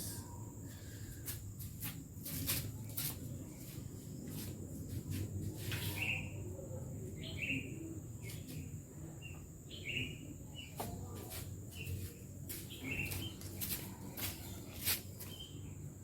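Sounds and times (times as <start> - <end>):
bird chirping: 9.2 - 10.9, 12.7 - 13.5.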